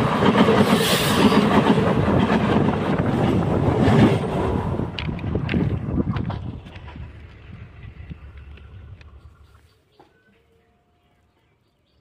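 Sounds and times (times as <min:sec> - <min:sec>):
train wheels rolling on rails: 0:00.0 - 0:10.2.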